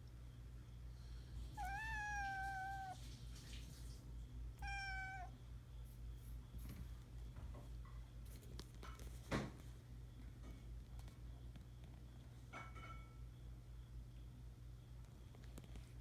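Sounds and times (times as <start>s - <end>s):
kitten meowing: 1.6s - 3.0s, 4.6s - 5.3s.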